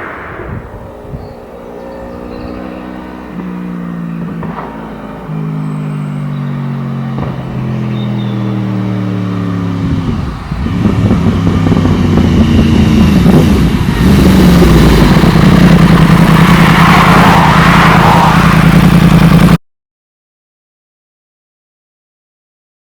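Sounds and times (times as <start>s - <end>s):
motorcycle engine running: 0.8s - 19.6s.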